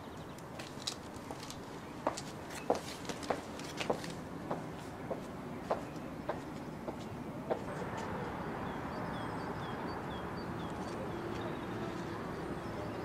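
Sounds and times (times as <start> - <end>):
footsteps on stone: 0.5 - 8.1
bird chirping: 5.5 - 13.0.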